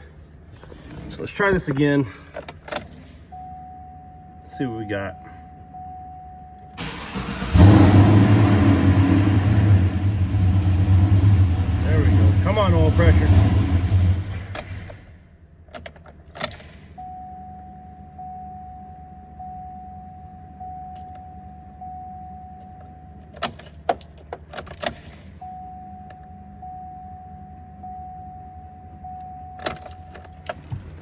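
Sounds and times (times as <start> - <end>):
faint low hum: 0.0 - 7.2, 15.1 - 31.0
dashboard warning chime: 3.3 - 6.8, 15.8 - 23.3, 25.4 - 30.6
keys jangling and clicking: 15.7 - 17.0, 23.2 - 25.4, 29.6 - 31.0.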